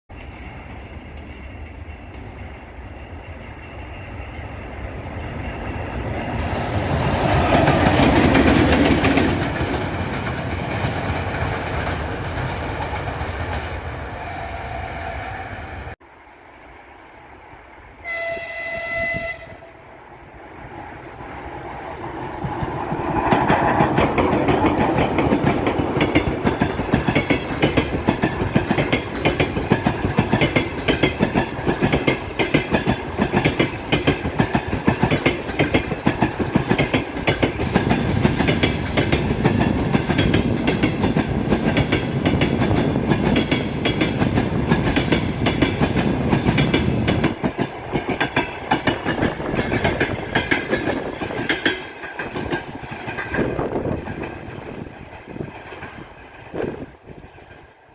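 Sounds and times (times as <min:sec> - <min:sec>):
train wheels clattering over rail joints: 0:06.9 - 0:13.8, 0:22.5 - 0:57.6.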